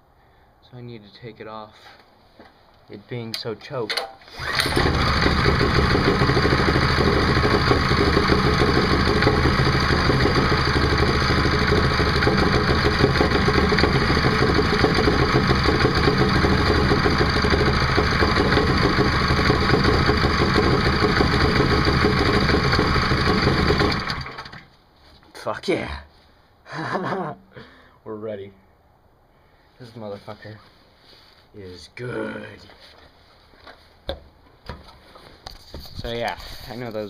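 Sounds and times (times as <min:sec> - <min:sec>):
small engine running: 0:04.3 - 0:24.6.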